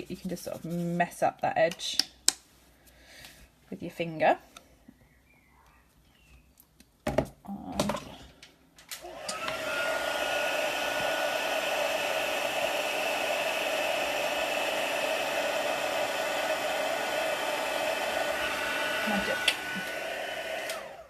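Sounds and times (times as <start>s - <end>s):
heat tool fan whine: 8.9s - 21.0s.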